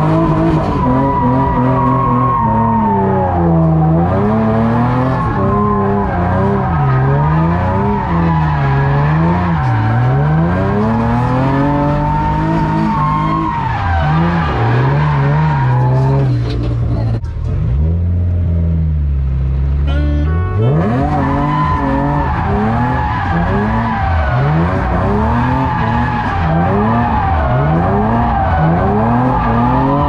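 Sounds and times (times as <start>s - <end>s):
vehicle engine revving: 20.4s - 30.0s.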